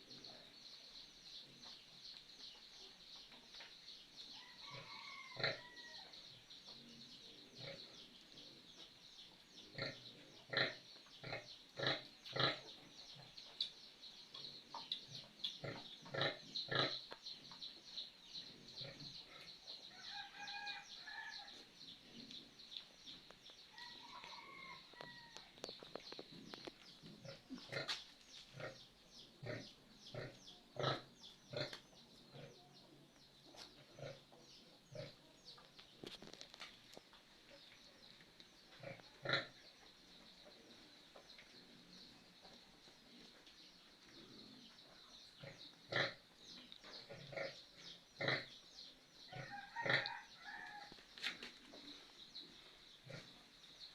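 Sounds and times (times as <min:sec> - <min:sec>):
pigs grunting: 0:09.7 - 0:12.7, 0:15.6 - 0:17.0, 0:29.4 - 0:32.6, 0:38.8 - 0:39.6, 0:45.4 - 0:46.2, 0:48.2 - 0:48.5.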